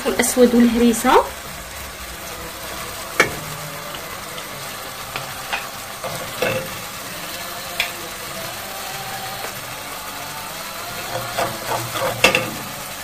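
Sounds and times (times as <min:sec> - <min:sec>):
garlic and spices sizzling in oil: 0:00.0 - 0:13.0
spoon knocking against pan: 0:05.5 - 0:06.8, 0:11.1 - 0:12.7.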